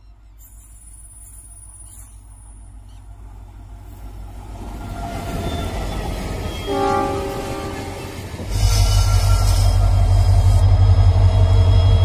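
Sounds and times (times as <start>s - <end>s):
train rumble and wheel noise: 0.0s - 12.0s
locomotive horn blast: 6.6s - 10.3s.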